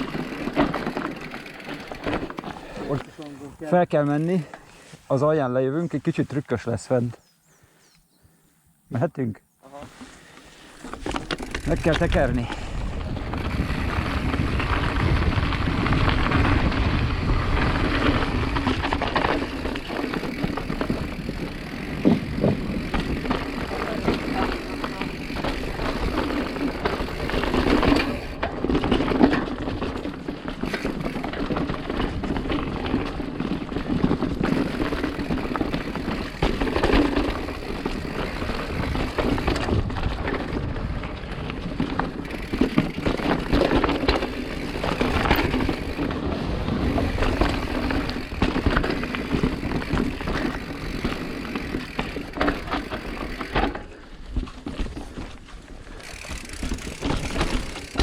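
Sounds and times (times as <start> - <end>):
bike rattling and knocking: 0.0 - 3.1, 10.8 - 58.0
tyre noise: 9.8 - 58.0
wind noise: 10.9 - 51.7.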